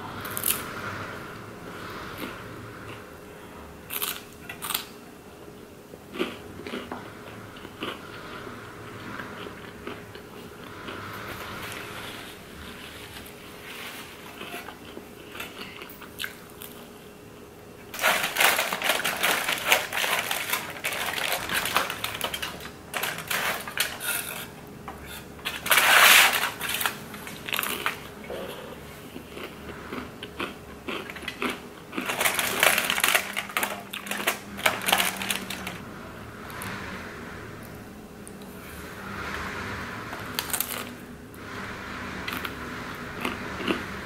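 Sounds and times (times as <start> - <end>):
crunching and chewing pizza: 3.8 - 5.0, 6.0 - 35.8, 38.4 - 44.0
aluminium foil crinkling: 17.9 - 24.5, 25.1 - 28.0, 31.3 - 35.8.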